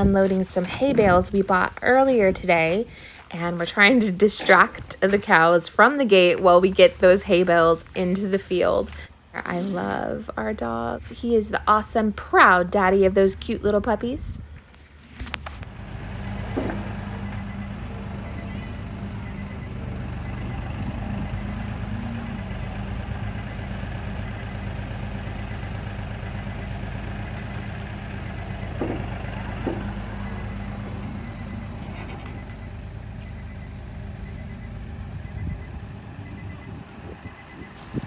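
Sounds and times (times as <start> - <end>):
tractor engine running: 0.0 - 38.0
short knocks: 27.7 - 30.6.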